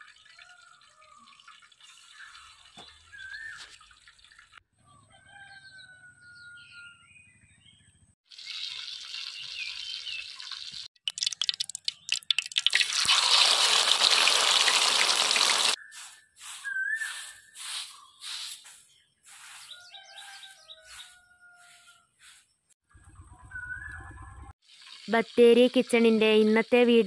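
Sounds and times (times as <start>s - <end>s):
birds chirping: 5.3s - 10.7s, 15.3s - 24.5s
food sizzling in hot oil: 8.3s - 15.8s, 24.6s - 26.1s
broom sweeping dirt: 15.8s - 22.7s.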